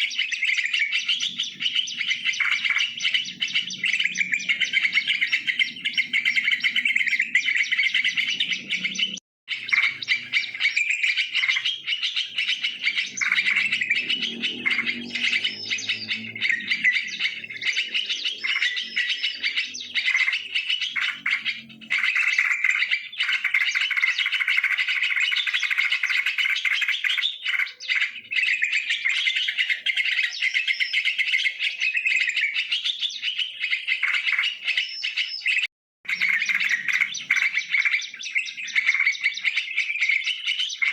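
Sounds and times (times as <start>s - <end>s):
birds chirping and calling: 0.0s - 40.9s.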